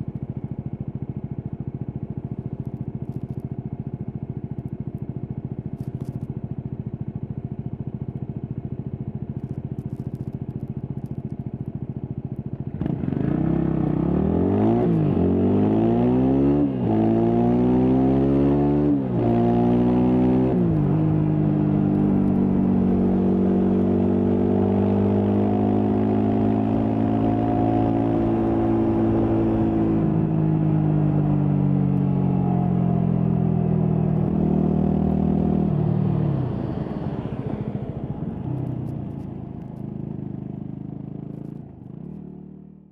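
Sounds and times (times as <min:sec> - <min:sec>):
motorcycle engine revving: 0:12.6 - 0:42.9.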